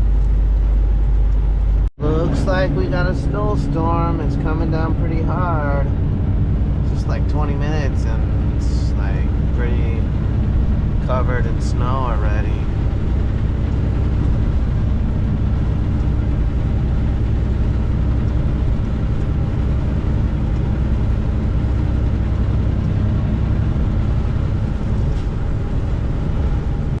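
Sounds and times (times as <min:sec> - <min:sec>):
diesel truck engine droning: 0:00.0 - 0:27.0
road and tyre noise: 0:00.0 - 0:27.0.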